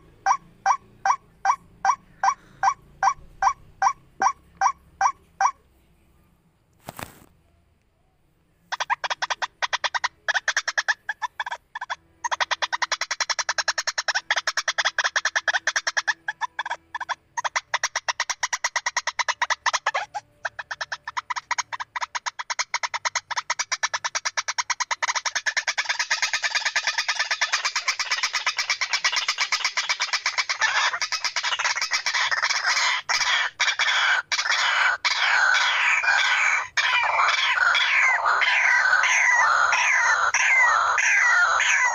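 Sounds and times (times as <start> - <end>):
waterhen calling: 8.7 - 41.9.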